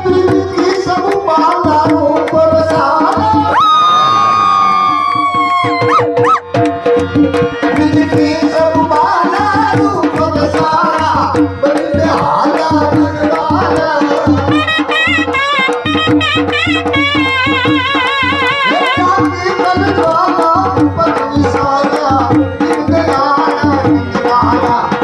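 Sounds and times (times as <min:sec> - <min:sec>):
drum rhythm: 0:00.0 - 0:03.8, 0:04.7 - 0:25.0
shawm playing ornamented melody: 0:14.4 - 0:20.4.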